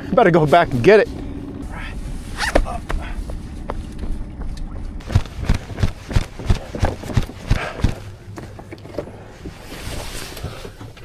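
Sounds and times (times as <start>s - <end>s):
heavy footsteps thudding: 5.0s - 8.2s.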